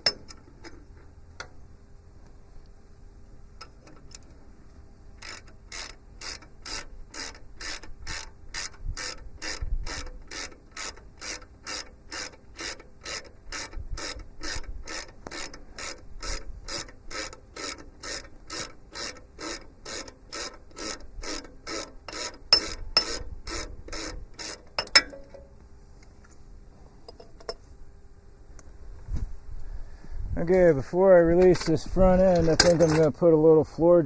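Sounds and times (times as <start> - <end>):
ratchet wrench ratcheting: 5.2 - 25.4.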